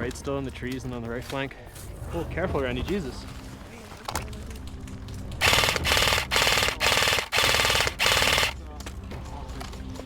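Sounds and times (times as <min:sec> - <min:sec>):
airsoft gun rapid bursts: 0:05.4 - 0:08.6.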